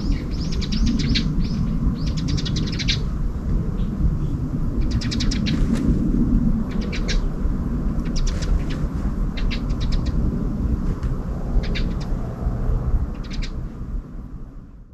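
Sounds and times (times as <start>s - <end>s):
bird chirping: 0.0s - 3.1s, 3.8s - 5.6s, 6.7s - 7.3s, 8.0s - 10.2s, 11.6s - 12.2s, 13.2s - 13.6s
low wind rumble: 0.0s - 14.9s.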